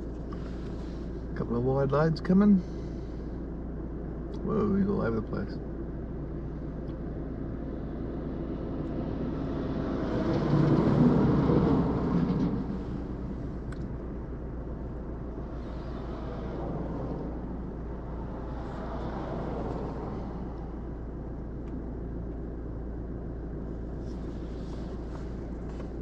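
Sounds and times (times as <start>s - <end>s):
car road and engine noise: 0.0s - 26.0s
truck passing: 7.5s - 21.7s.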